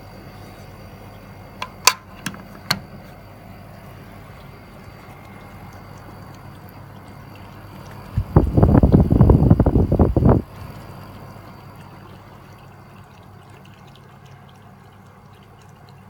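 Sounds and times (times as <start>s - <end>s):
heat pump humming: 0.0s - 16.0s.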